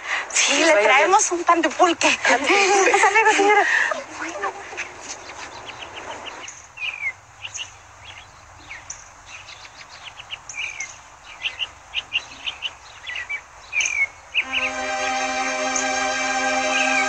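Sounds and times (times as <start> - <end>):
small birds chirping: 3.9 - 14.7.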